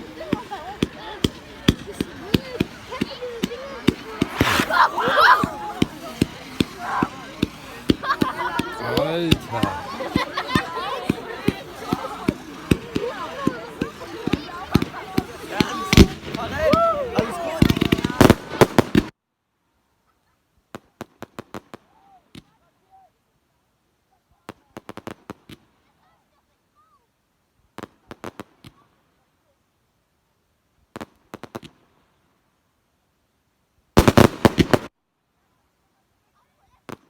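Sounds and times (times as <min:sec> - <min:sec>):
fireworks bangs: 0:00.0 - 0:19.1, 0:34.0 - 0:34.9.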